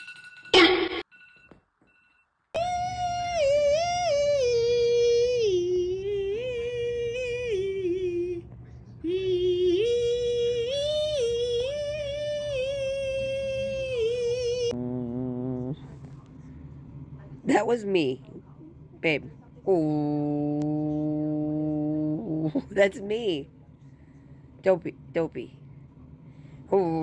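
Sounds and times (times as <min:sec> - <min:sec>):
high voice singing wordless tune: 0:02.6 - 0:15.8, 0:19.7 - 0:22.6.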